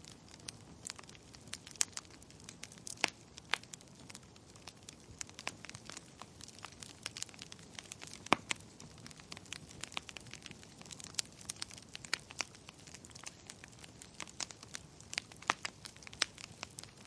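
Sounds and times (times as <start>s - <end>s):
soft steady hiss: 0.0s - 17.0s
wood fire crackling: 0.0s - 17.0s.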